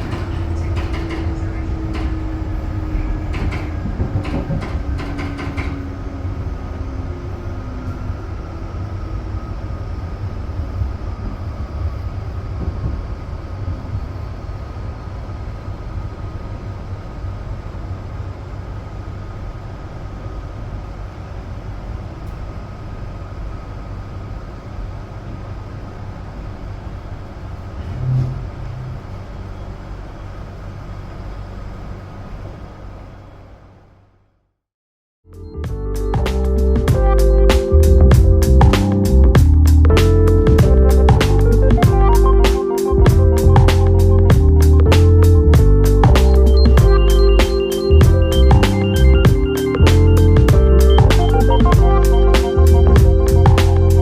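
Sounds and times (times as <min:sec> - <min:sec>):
train rumbling on rails: 0:00.0 - 0:34.2, 0:36.1 - 0:54.0
motor tone falling in pitch: 0:27.8 - 0:29.6, 0:35.5 - 0:54.0
brief low tone: 0:27.8 - 0:29.8.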